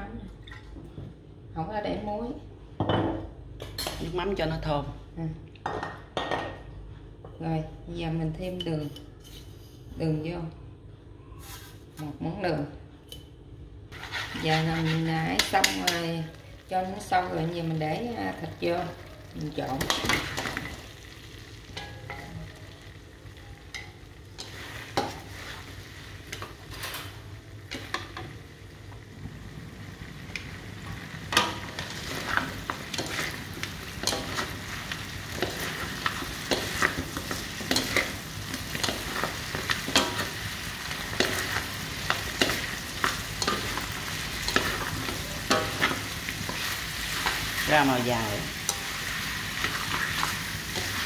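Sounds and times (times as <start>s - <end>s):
utensil scraping a pan: 13.9s - 15.9s
chicken sizzling in a pan: 14.0s - 51.0s.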